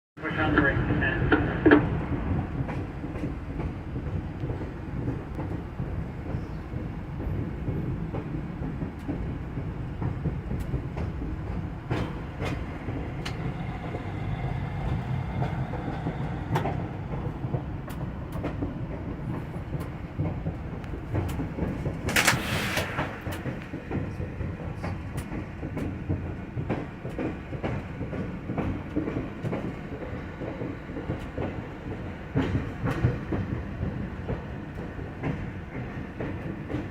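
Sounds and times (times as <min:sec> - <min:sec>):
locomotive engine and wheels rumbling: 0:00.2 - 0:36.9
wheels clicking over rail joints: 0:01.7 - 0:36.9
brief hiss: 0:22.2 - 0:23.8.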